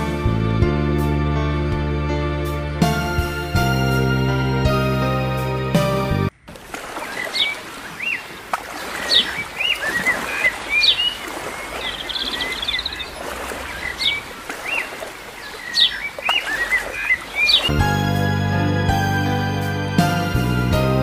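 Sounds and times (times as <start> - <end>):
small birds chirping: 6.4 - 17.8.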